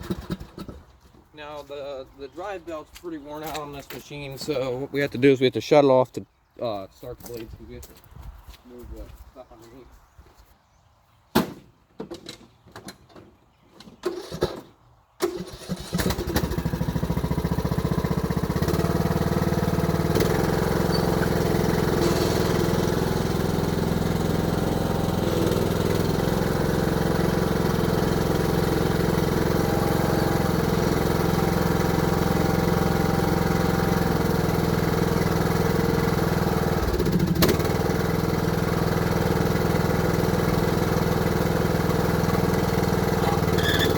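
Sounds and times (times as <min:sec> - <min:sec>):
riding mower engine running: 0:00.0 - 0:00.8, 0:15.2 - 0:43.9.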